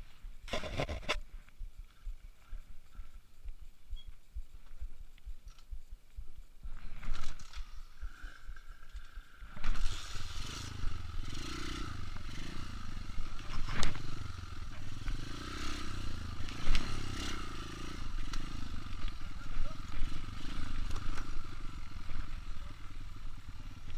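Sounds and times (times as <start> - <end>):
motorcycle engine revving: 7.4 - 23.9.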